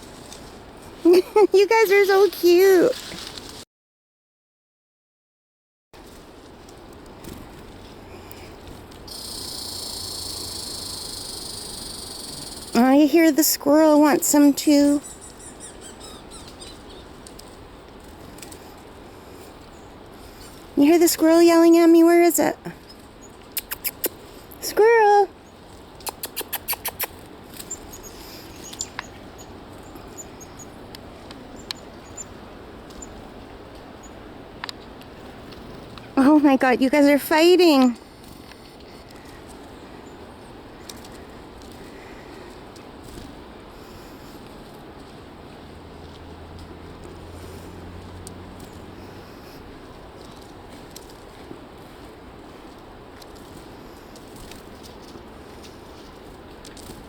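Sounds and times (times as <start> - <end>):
squirrel chattering trill: 9.1 - 17.0, 23.5 - 25.0, 26.0 - 29.2
chickadees chirping: 9.1 - 17.2, 25.4 - 33.2
squirrel chattering clicks: 23.5 - 24.2, 26.0 - 29.2.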